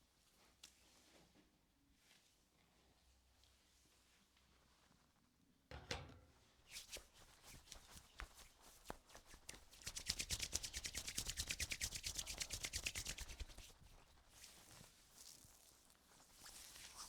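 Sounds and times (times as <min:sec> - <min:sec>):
hands massaging skin: 0:06.7 - 0:13.8.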